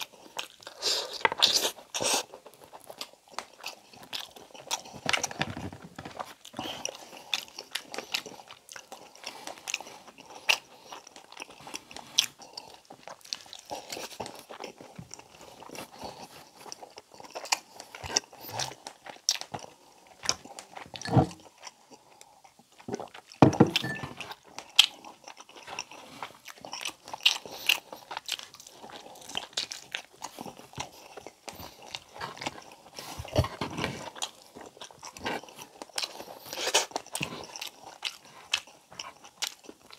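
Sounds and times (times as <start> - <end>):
wet chewing mouth sounds: 0.0 - 39.9.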